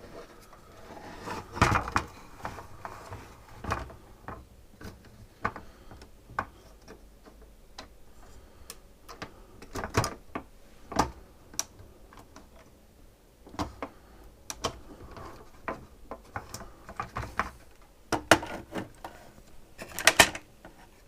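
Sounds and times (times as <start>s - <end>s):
hard plastic parts clicking: 19.8s - 20.5s.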